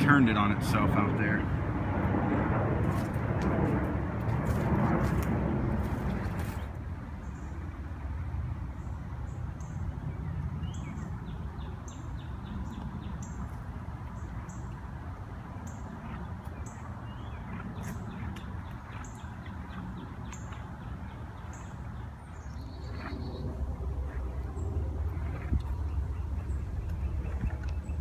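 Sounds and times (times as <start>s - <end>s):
low outdoor rumble: 0.0s - 28.0s
bird chirping: 15.6s - 28.0s.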